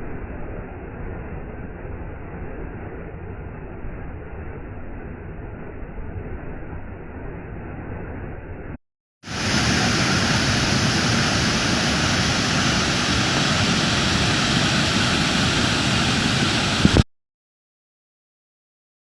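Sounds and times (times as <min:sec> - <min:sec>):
waterfall rushing: 0:09.3 - 0:17.0.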